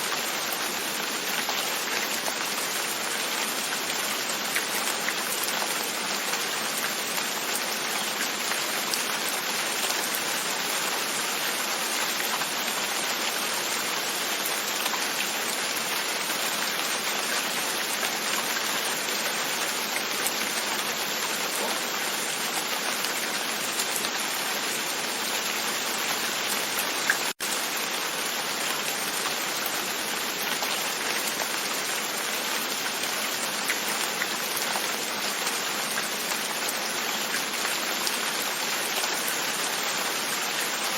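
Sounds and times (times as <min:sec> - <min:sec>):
rain on a window: 0:00.0 - 0:40.9.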